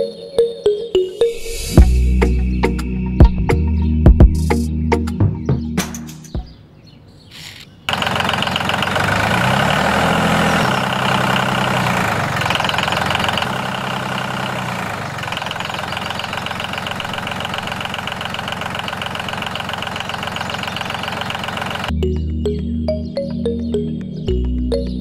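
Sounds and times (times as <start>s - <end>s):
background music: 0.0s - 6.5s, 21.9s - 25.0s.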